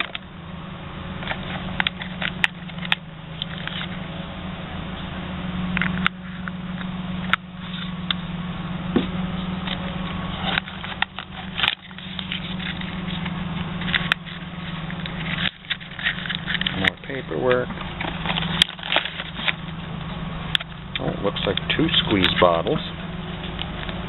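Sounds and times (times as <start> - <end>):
steady low hum: 0.0 - 24.0
packaging crackling and scraping: 9.7 - 19.8.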